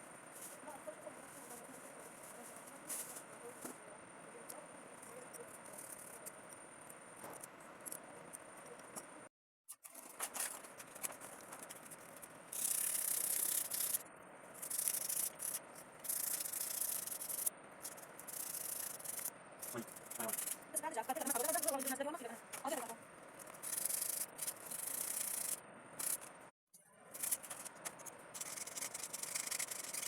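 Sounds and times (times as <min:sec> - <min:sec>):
scratchy rubbing: 0:14.6 - 0:20.6, 0:23.4 - 0:26.3, 0:27.2 - 0:30.0.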